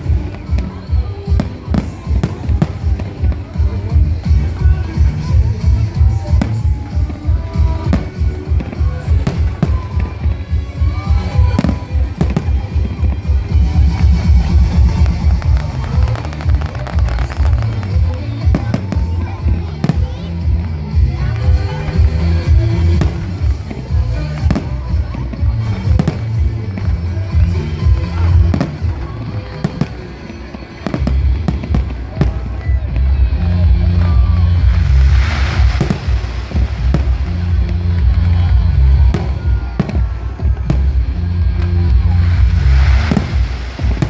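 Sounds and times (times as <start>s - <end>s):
fireworks bangs: 0.0s - 20.3s, 21.2s - 44.0s
loud bass-heavy music: 0.0s - 30.2s, 30.8s - 44.0s
music with heavy bass beat: 30.8s - 44.0s.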